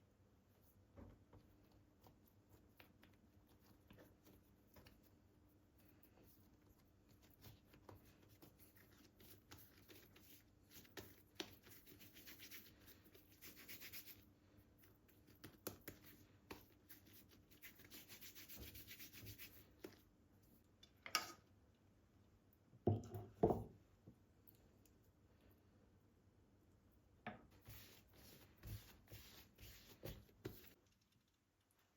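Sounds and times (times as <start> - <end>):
faint rubbing strokes: 27.6 - 30.8.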